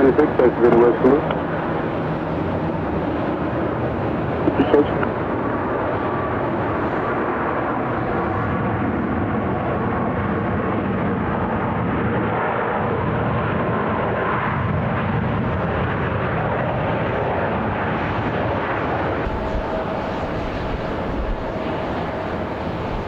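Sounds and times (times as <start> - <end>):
airliner jet engine noise: 0.0 - 23.0.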